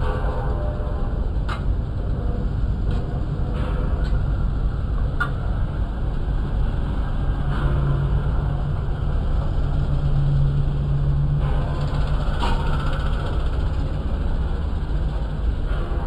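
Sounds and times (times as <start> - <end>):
tractor engine running: 8.8 - 16.0.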